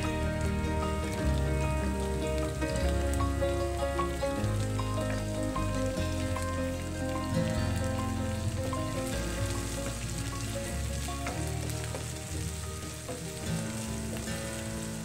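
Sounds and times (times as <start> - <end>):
onions sizzling in a pan: 0.0 - 15.0.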